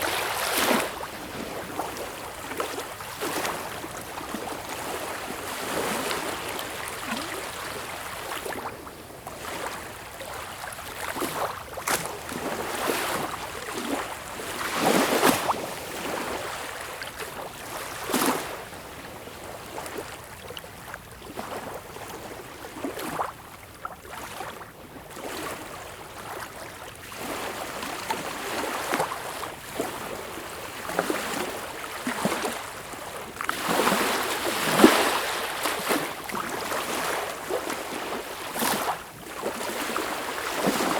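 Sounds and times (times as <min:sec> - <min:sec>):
sea water splashing: 0:00.0 - 0:06.3, 0:31.0 - 0:40.9.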